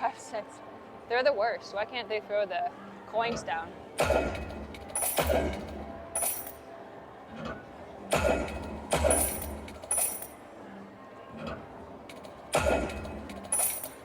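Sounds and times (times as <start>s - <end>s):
slot machine tones: 4.3s - 6.6s, 8.5s - 10.4s, 12.1s - 14.0s.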